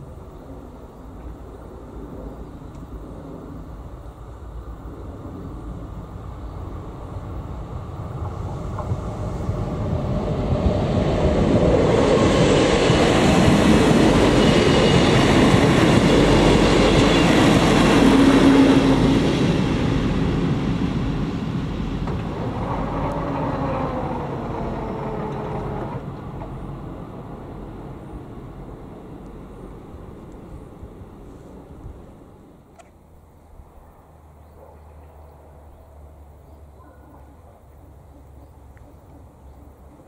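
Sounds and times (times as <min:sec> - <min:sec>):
diesel train engine: 0:00.0 - 0:40.0
train wheel noise: 0:06.0 - 0:32.8.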